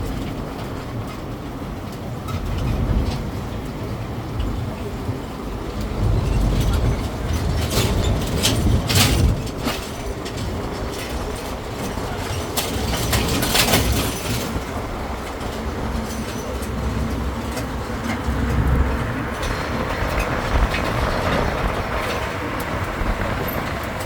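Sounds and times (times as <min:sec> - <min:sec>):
carriages rattling: 0:00.0 - 0:24.0
engine and tyres rumbling: 0:00.0 - 0:24.0.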